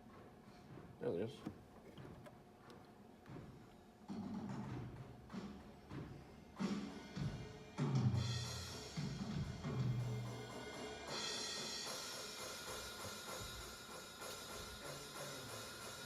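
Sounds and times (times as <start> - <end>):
cymbal crash: 8.2 - 16.0.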